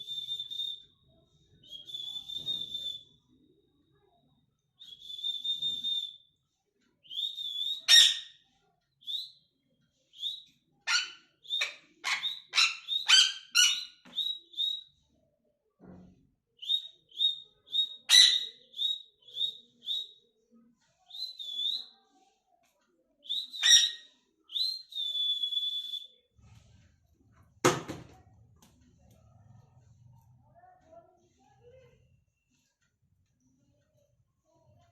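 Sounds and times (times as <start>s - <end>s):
parrot whistling and chirping: 1.6s - 3.2s, 7.1s - 8.4s, 10.1s - 15.0s, 16.6s - 20.2s, 23.2s - 26.2s.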